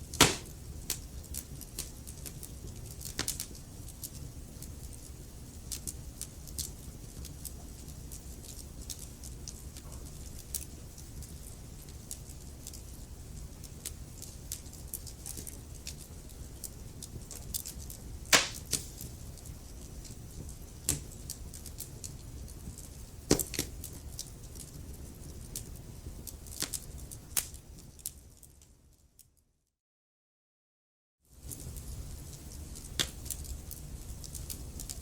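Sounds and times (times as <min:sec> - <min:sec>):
fire rumbling: 0:00.0 - 0:28.1
fire crackling and popping: 0:00.0 - 0:28.9, 0:31.4 - 0:35.0.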